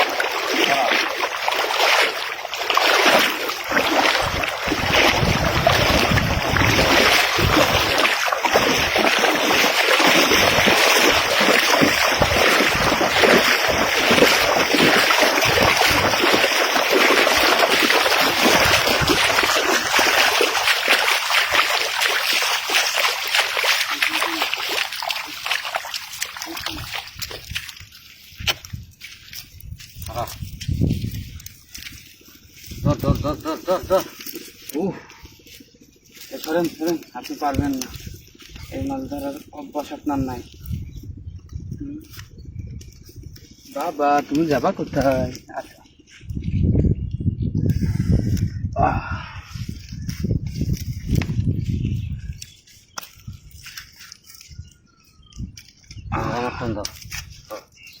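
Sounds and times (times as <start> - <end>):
river water splashing: 0.0 - 29.5.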